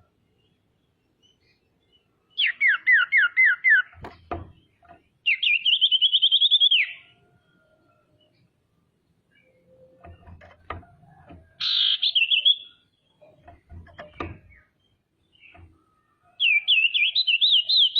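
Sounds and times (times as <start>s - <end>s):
bird whistling and trilling: 2.4s - 4.0s, 5.3s - 7.1s, 11.6s - 12.9s, 16.4s - 17.9s
sharp knocks: 3.9s - 5.1s, 10.0s - 11.6s, 13.3s - 14.6s, 15.5s - 15.8s.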